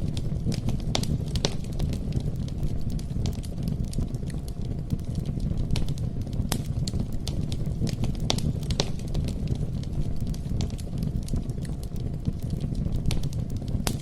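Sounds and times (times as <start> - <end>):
burning wood crackling and popping: 0.0 - 14.0
low rumble of flames: 0.0 - 14.0.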